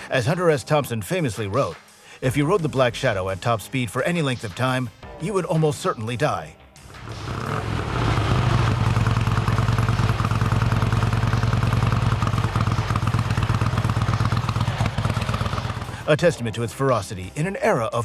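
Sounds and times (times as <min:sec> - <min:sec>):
motorcycle engine running: 0:06.8 - 0:16.1.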